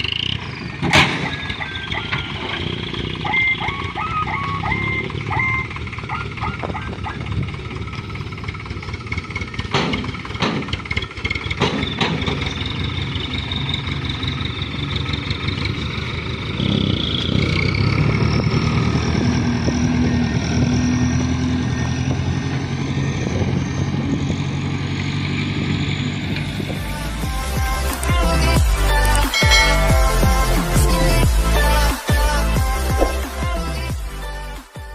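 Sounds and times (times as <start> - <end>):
truck clunks: 0.0 - 22.9, 24.2 - 27.2, 27.8 - 31.8, 32.7 - 33.6
truck diesel engine running: 0.0 - 34.9.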